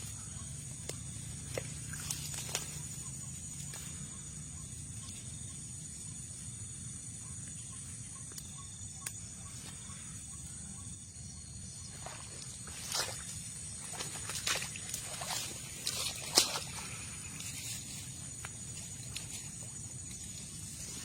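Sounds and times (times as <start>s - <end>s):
insect chorus chirring: 0.0s - 21.0s.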